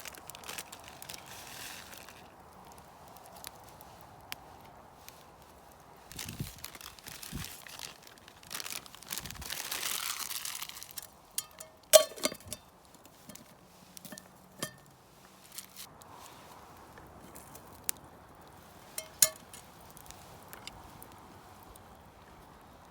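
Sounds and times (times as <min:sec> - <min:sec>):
plastic packaging crinkling: 0:00.0 - 0:02.4, 0:06.1 - 0:13.4
hard objects clinking: 0:10.8 - 0:14.9, 0:19.0 - 0:19.6.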